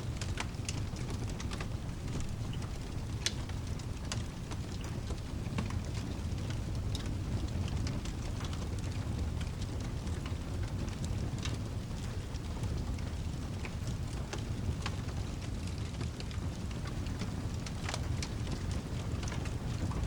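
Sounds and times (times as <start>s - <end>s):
low continuous rumble: 0.0s - 20.0s
steady rain: 0.0s - 20.0s
wood fire crackling: 0.0s - 20.0s.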